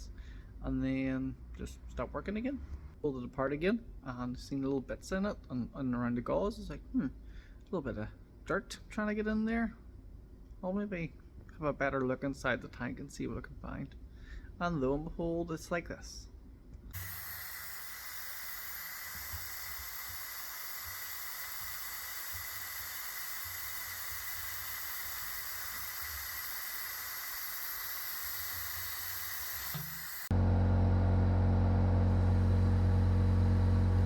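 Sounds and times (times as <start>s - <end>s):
steady hiss: 17.0s - 30.3s
loud mechanical hum: 17.0s - 34.0s.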